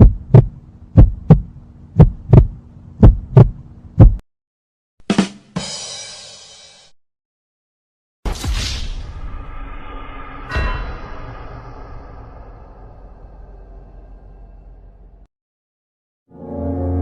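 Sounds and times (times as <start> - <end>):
heartbeat thumps: 0.0 - 4.2
low hum: 0.0 - 4.2, 9.0 - 15.3
short hit: 8.3 - 14.1.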